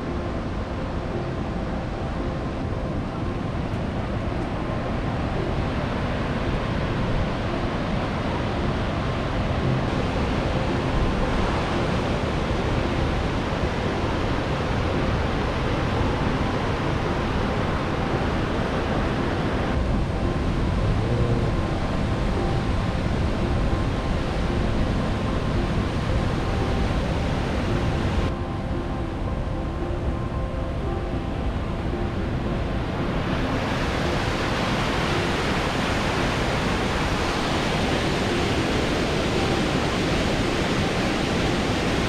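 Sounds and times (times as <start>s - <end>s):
road and wind noise: 0.0s - 42.0s
faint car engine: 19.8s - 23.7s.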